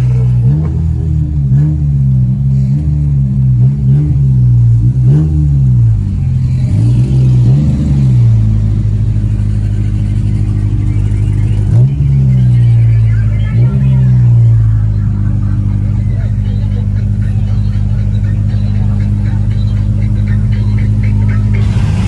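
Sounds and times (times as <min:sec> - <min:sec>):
car engine revving: 0:00.0 - 0:14.8, 0:21.4 - 0:22.0.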